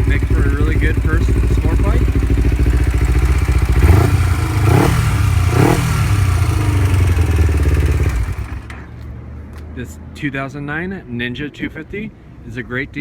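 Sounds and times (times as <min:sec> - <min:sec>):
motorcycle engine idling and revving: 0:00.0 - 0:09.6.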